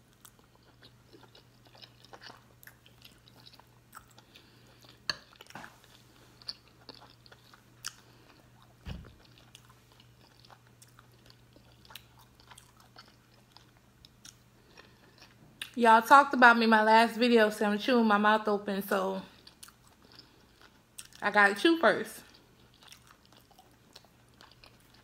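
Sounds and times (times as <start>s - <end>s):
steady low hum: 0.0s - 25.0s
soft low thump: 8.8s - 9.2s.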